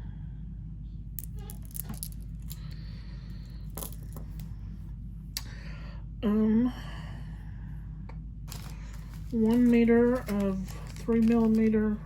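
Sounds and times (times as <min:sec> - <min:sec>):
steady low hum: 0:00.0 - 0:12.0
packets crinkling: 0:08.5 - 0:12.0.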